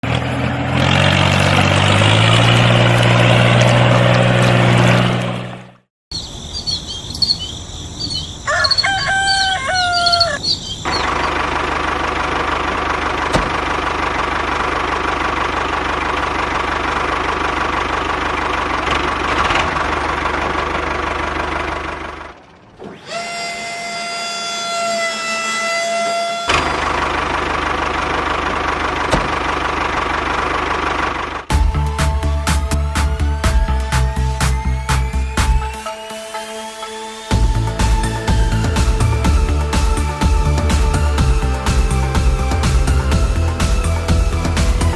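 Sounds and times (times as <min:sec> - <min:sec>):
birds chirping: 0:06.1 - 0:11.5
rooster crowing: 0:08.1 - 0:11.0
small motor running: 0:22.8 - 0:27.1.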